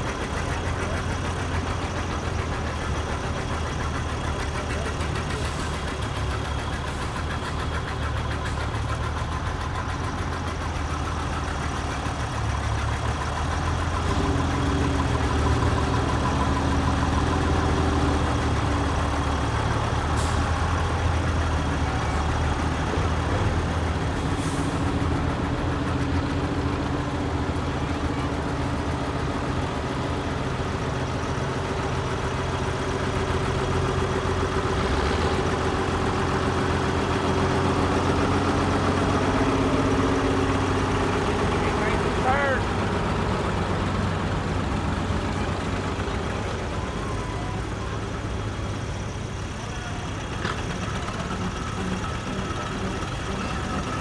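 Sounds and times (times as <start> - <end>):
tractor engines running: 0.0 - 54.0.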